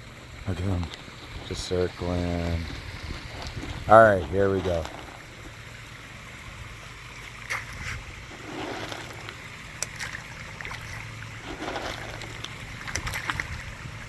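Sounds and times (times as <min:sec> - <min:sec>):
water splashing in a pond: 0:00.0 - 0:14.0
waterfall rushing: 0:08.0 - 0:14.0.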